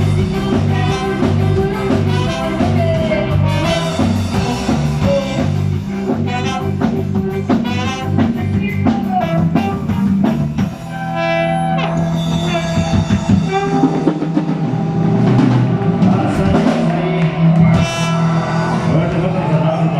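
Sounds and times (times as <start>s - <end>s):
live instrumental band with brass: 0.0s - 19.9s.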